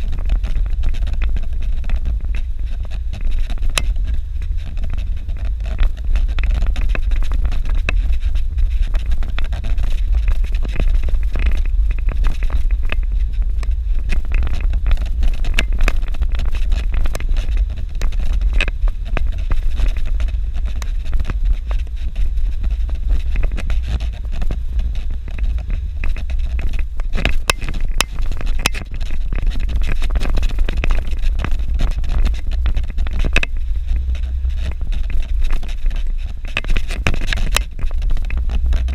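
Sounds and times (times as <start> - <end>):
vehicle driving on dirt road: 0.0 - 38.9.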